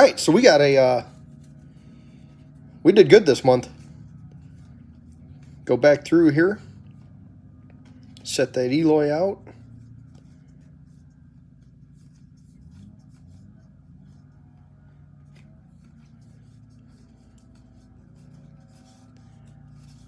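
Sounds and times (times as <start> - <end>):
low steady hum: 0.0 - 20.0
cards being flipped by hand: 1.0 - 5.6, 9.6 - 20.0.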